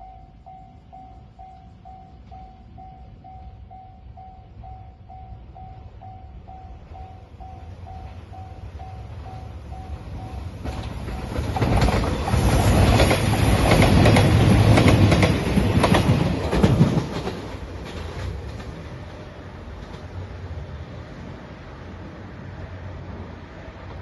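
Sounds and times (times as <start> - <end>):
diesel train rumbling past: 0.0 - 24.0
wheels clicking over rail joints: 10.0 - 20.3.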